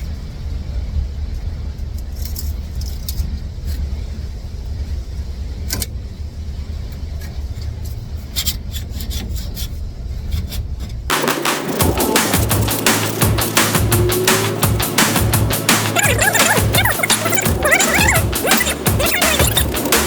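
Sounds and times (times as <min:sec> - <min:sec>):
low rumble: 0:11.2 - 0:20.0.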